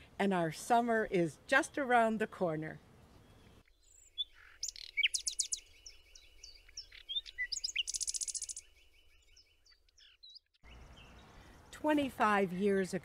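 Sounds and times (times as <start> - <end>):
songbirds singing: 1.0 - 13.0
long bird trill: 3.7 - 11.2.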